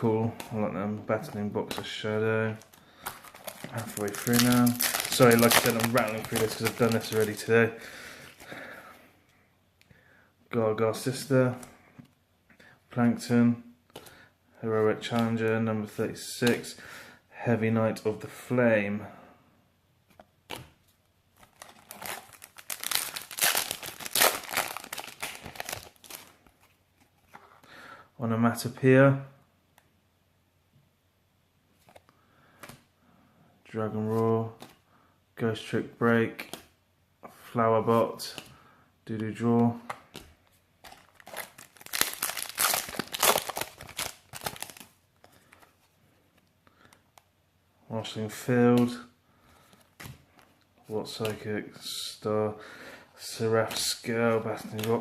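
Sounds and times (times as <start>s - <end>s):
foil wrapper tearing and crinkling: 3.0s - 7.4s, 21.4s - 26.3s, 40.9s - 45.0s.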